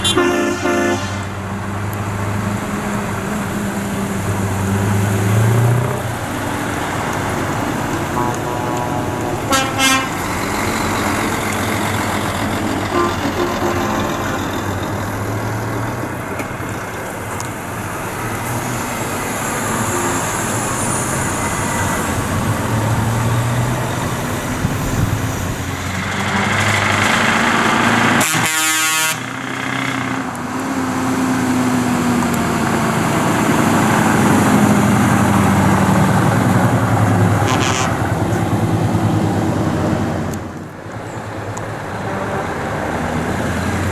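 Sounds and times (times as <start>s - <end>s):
truck horn blast: 0.0s - 1.6s, 7.3s - 12.0s, 12.7s - 15.0s, 19.6s - 20.9s, 28.0s - 30.0s, 36.8s - 38.5s, 41.9s - 43.2s
truck engines passing: 0.0s - 43.9s.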